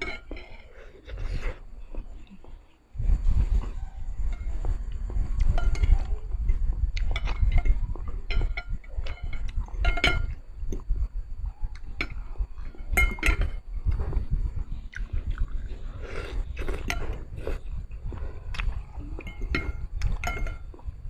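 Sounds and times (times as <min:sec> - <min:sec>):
utensils clinking on bowl: 0:00.0 - 0:01.2, 0:07.0 - 0:10.4, 0:12.8 - 0:13.6, 0:19.2 - 0:20.8
chewing sounds: 0:11.7 - 0:21.0.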